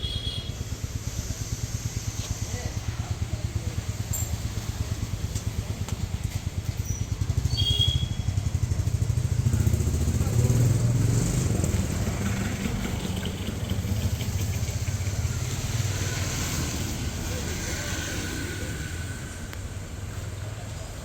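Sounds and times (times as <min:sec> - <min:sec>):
excavator diesel engine running: 0:00.2 - 0:21.0.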